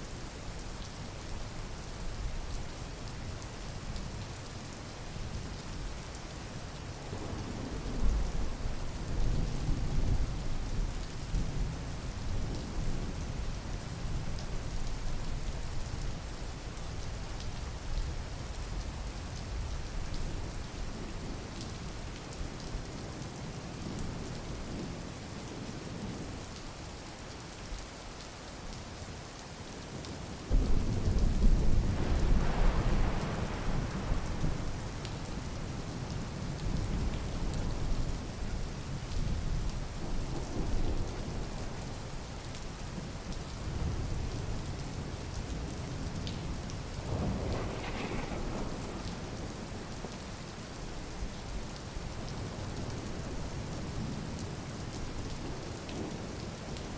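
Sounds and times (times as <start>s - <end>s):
steady rain falling: 0.0s - 56.9s
thunder rumbling: 30.5s - 35.0s, 47.0s - 50.2s.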